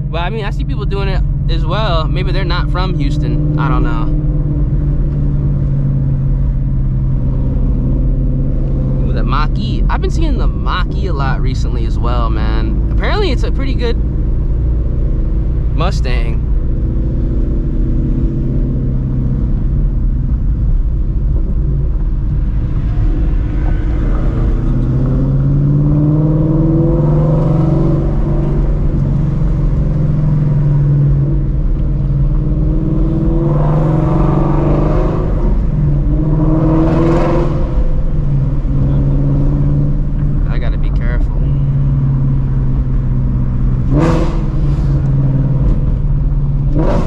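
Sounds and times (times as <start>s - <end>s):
sports car engine at low revs: 0.0s - 47.0s.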